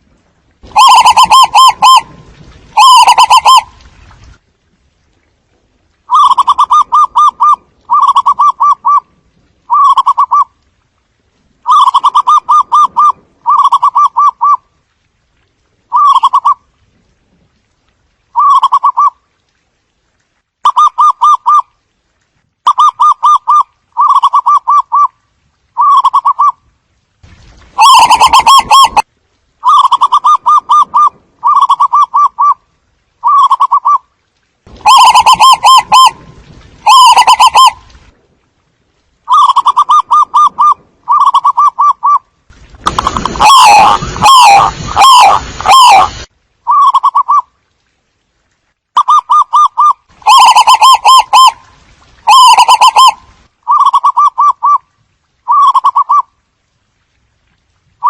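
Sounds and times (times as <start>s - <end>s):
dove cooing: 2.8s - 3.6s, 6.1s - 9.0s, 49.0s - 51.6s, 52.3s - 54.8s.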